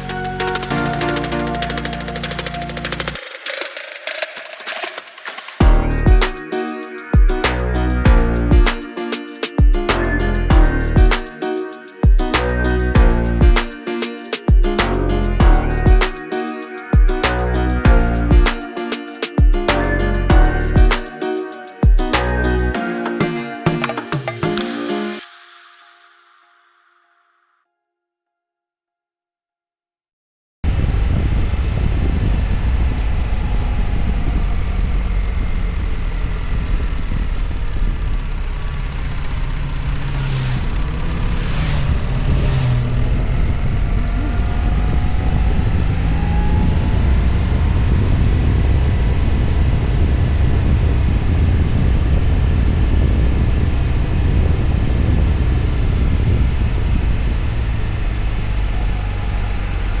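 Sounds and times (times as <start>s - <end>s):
motorcycle engine running: 31.6s - 51.5s.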